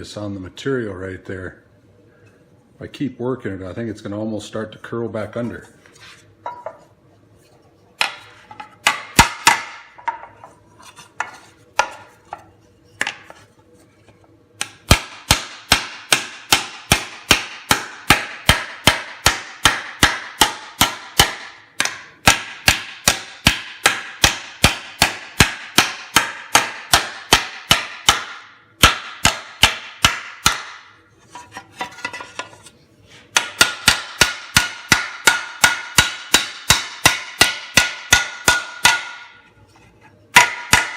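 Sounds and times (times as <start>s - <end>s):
hammer striking sheet metal: 8.0s - 10.2s, 14.6s - 31.0s, 33.3s - 39.4s, 40.3s - 40.9s.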